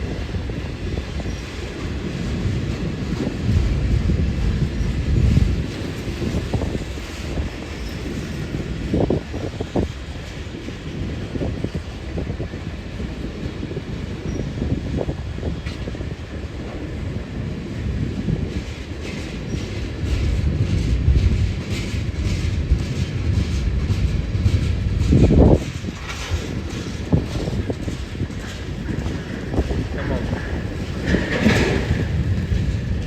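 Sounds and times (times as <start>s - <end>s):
train rumbling on track: 0.0s - 33.0s
wheel clicks over rail joints: 25.0s - 33.0s
knocks: 26.0s - 32.7s.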